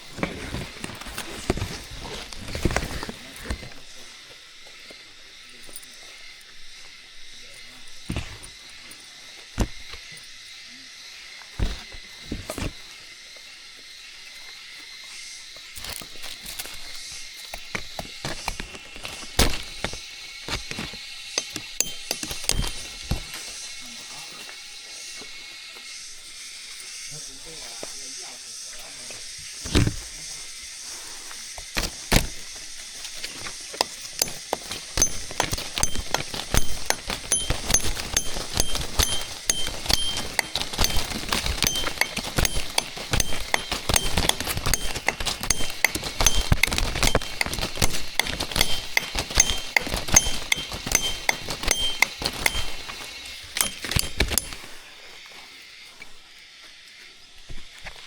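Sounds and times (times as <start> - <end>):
sharp clicks and knocks: 18.4 - 23.3, 33.2 - 54.7
metal clinking: 20.8 - 23.6, 31.6 - 54.8.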